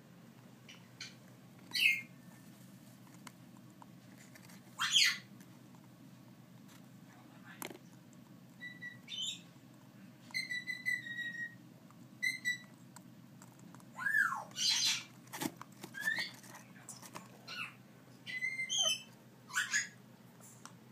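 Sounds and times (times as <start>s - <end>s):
parrot chicks whistling and chirping: 0.7s - 2.2s, 4.8s - 5.3s, 8.6s - 9.5s, 10.3s - 11.6s, 12.2s - 12.7s, 14.0s - 15.1s, 15.9s - 16.4s, 17.5s - 20.0s.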